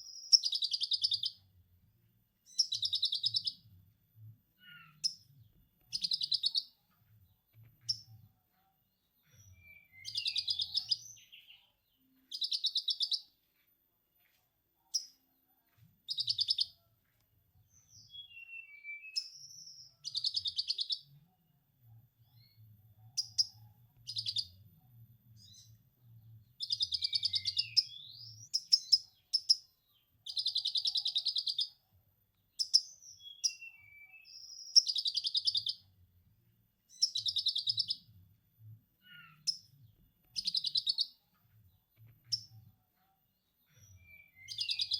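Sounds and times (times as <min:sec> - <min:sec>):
songbird singing buzzy trills: 0:00.0 - 0:01.5, 0:02.4 - 0:03.7, 0:04.5 - 0:08.2, 0:09.0 - 0:13.4, 0:16.1 - 0:16.8, 0:17.7 - 0:21.2, 0:22.3 - 0:31.8, 0:32.4 - 0:36.0, 0:36.9 - 0:38.3, 0:39.0 - 0:42.7, 0:43.4 - 0:44.9.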